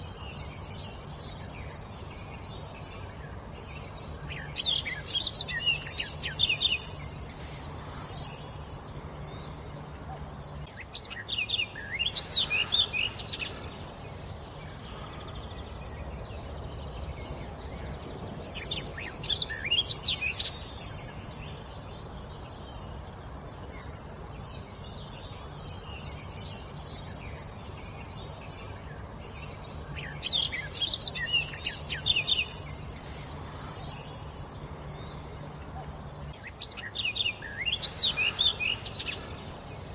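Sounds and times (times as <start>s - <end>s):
faint low hum: 0.0s - 39.9s
songbird chirping: 0.0s - 39.9s.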